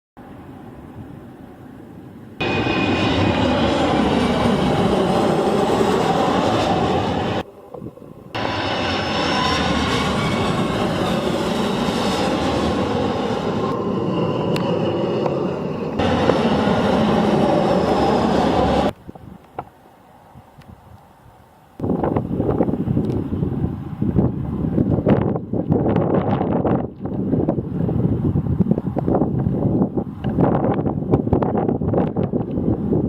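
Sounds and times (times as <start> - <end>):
jet engines rushing: 0.2 - 19.0.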